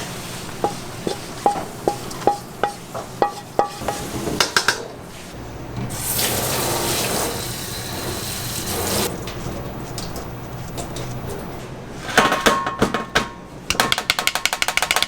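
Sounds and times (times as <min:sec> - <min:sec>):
water running from a tap: 0:05.5 - 0:09.1.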